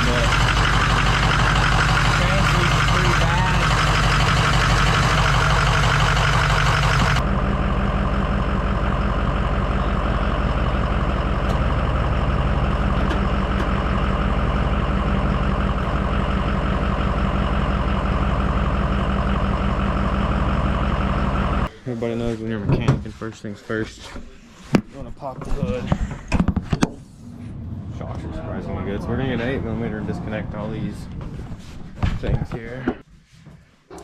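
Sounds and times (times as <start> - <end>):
diesel engine running: 0.0 - 21.8, 27.0 - 32.1.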